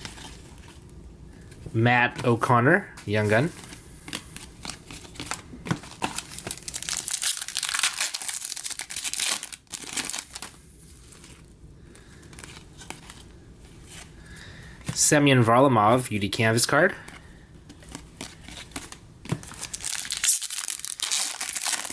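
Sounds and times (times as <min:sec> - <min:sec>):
plastic wrapper tearing and crinkling: 0:04.1 - 0:11.5, 0:17.8 - 0:21.9
faint handling sounds: 0:10.1 - 0:15.1.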